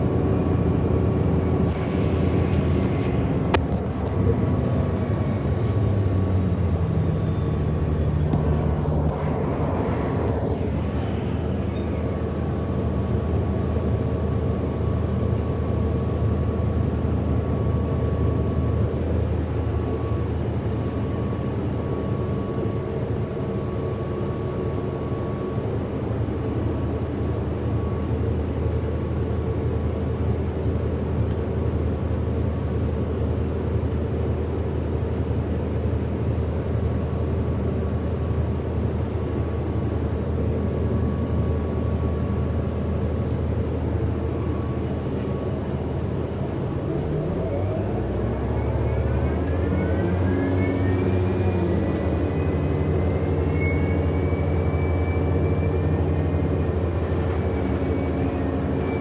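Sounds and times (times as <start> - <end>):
bus interior drone: 0.0 - 59.0
high thin whine: 5.2 - 12.0.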